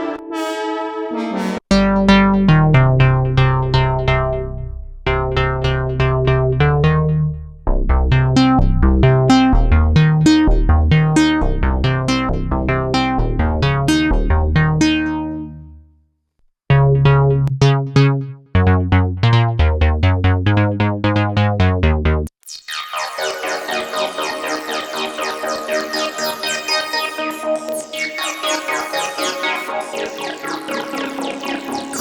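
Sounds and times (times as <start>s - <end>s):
synthesizer plucky notes: 0.0s - 15.8s, 16.7s - 32.0s
low bass line: 1.7s - 15.8s, 16.7s - 22.3s.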